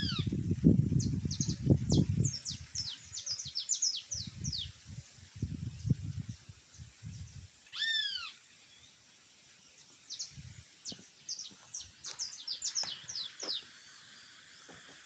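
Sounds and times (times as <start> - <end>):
loud arched bird call: 7.7 - 8.4.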